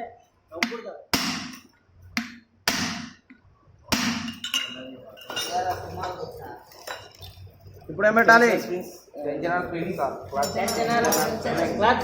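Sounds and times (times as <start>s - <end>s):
metal parts and tools clinking: 4.3s - 7.5s, 10.3s - 11.6s.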